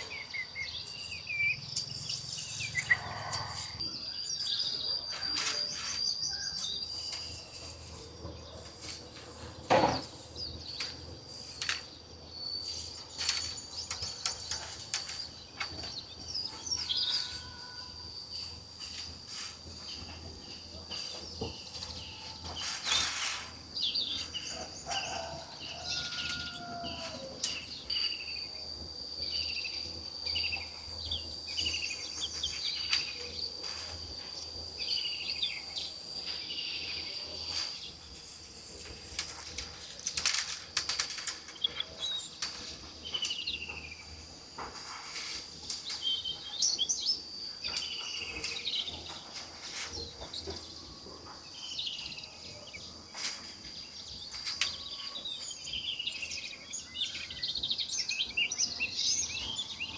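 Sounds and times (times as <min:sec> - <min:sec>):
birds chirping: 0:00.0 - 0:59.9
high-pitched insect drone: 0:16.3 - 0:23.1.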